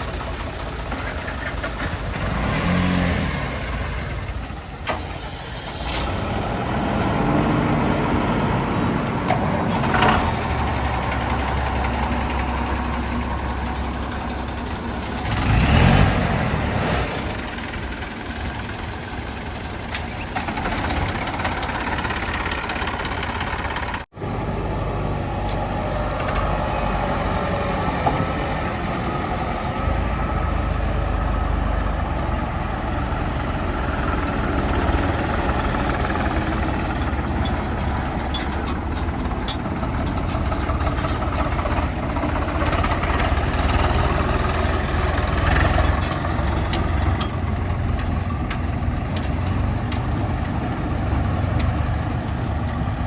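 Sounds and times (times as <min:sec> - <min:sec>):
heavy diesel engines rumbling: 0:00.0 - 0:53.0
clicks and knocks: 0:45.6 - 0:53.0.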